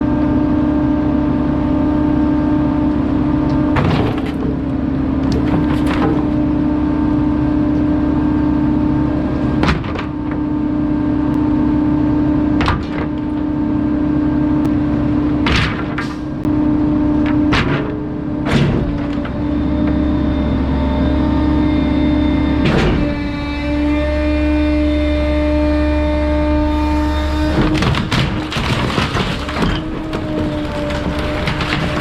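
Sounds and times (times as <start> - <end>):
truck engine: 0.0 - 32.0
garbage truck compactor hydraulic hum: 0.1 - 32.0
cracks and snaps of crushed items: 27.6 - 32.0.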